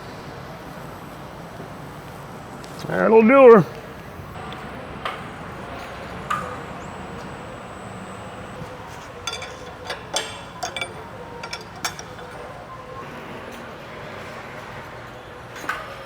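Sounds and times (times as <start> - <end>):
steady shop hum: 0.0 - 15.5
metallic ringing: 7.8 - 13.0
metal tools clattering on workbench: 9.1 - 12.7.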